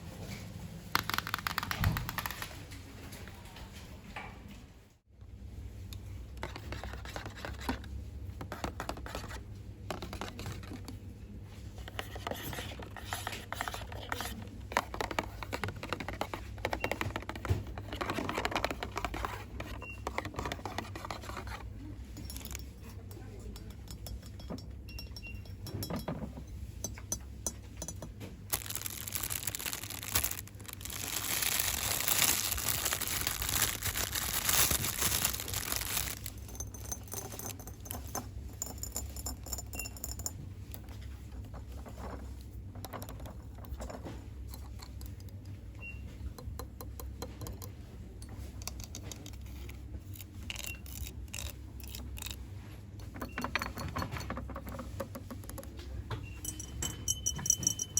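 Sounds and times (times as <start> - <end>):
plastic packaging crinkling: 1.0 - 2.5, 28.5 - 36.9
fingers tapping and clicking items: 1.0 - 2.6, 11.9 - 21.6, 26.9 - 40.3, 53.0 - 57.9.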